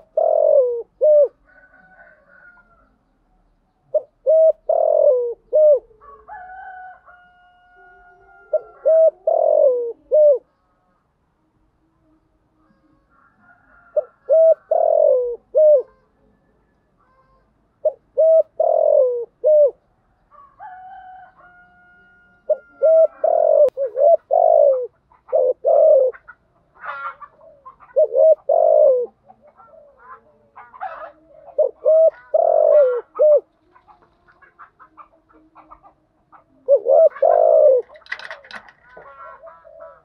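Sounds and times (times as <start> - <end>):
doves cooing: 0.0 - 2.9, 3.8 - 10.5, 12.6 - 17.2, 17.8 - 40.0.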